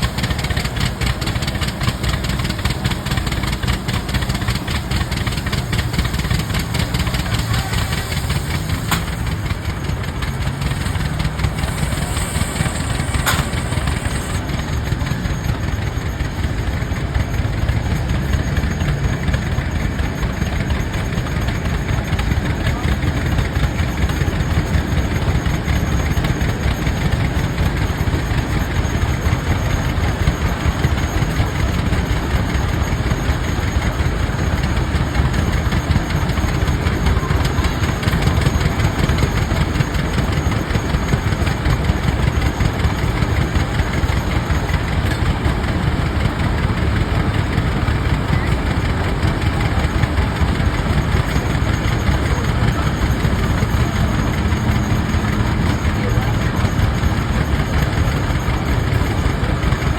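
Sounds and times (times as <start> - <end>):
tractor engines running: 0.0 - 59.9.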